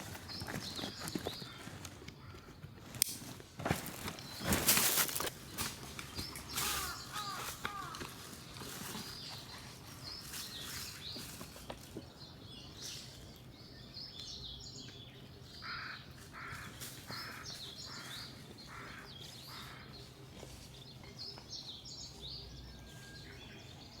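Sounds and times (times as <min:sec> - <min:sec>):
small birds chirping: 0:00.0 - 0:24.0
harsh bird call: 0:06.4 - 0:08.4.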